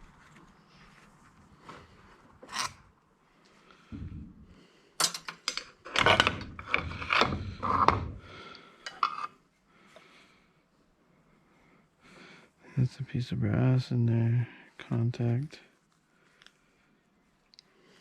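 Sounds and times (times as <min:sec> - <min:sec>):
metal clicks knocks and scrapes: 0:05.0 - 0:08.2.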